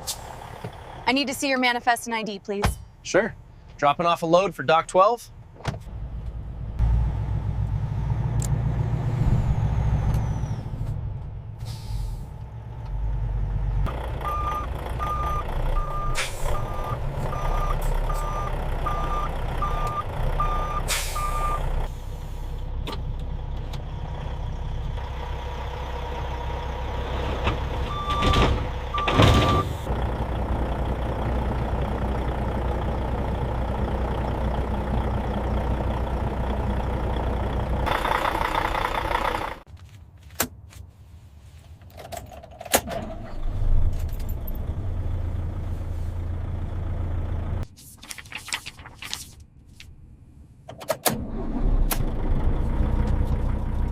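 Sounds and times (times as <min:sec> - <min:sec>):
diesel truck engine running: 0:00.0 - 0:04.4, 0:05.3 - 0:39.7, 0:43.2 - 0:47.7, 0:51.2 - 0:53.9
backup alarm beeping: 0:14.2 - 0:21.7, 0:27.9 - 0:29.9.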